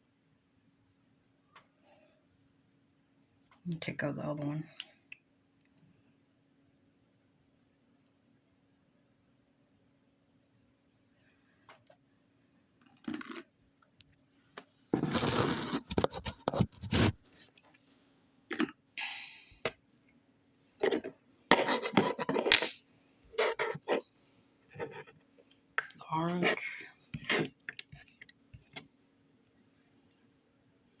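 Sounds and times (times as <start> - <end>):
slime scraping and crackling: 15.0 - 17.4.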